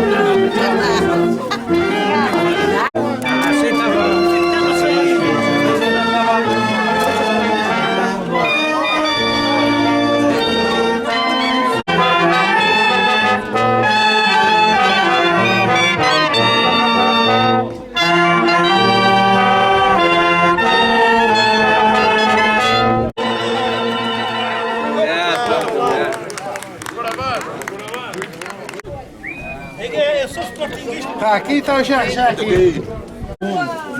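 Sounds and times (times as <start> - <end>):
brass band playing a tune: 0.0 - 25.5.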